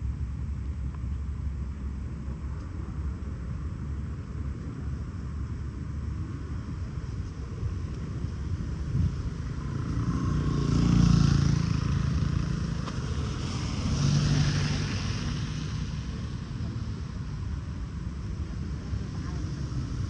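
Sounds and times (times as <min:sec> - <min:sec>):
steady low rumble: 0:00.0 - 0:10.0
vehicles passing by: 0:00.0 - 0:20.0.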